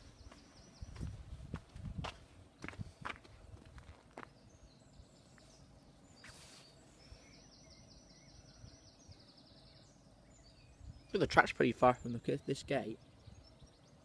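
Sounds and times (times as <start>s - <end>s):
faint birdsong chirps and trill: 0.0s - 14.0s
brief hiss: 6.2s - 6.8s.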